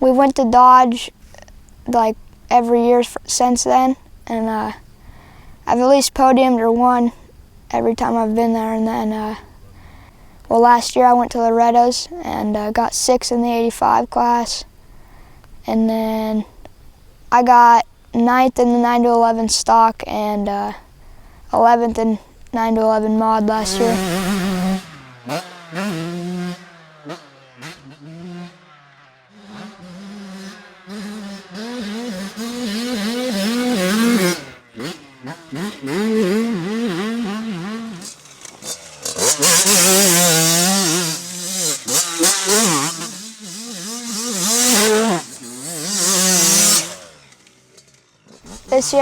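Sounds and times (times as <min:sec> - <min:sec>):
two-stroke motocross engines revving: 0:22.6 - 0:49.0.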